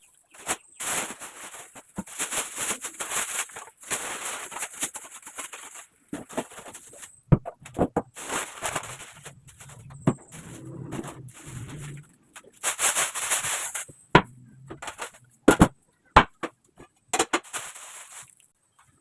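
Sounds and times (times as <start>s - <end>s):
plastic bags rustling: 0.4s - 16.4s, 17.2s - 18.6s
items being set down: 5.4s - 18.4s.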